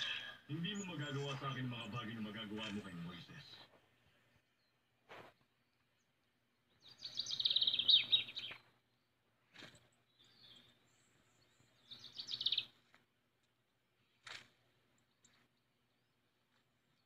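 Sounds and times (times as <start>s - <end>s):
bird chirping from phone: 6.8s - 8.7s, 11.8s - 12.8s.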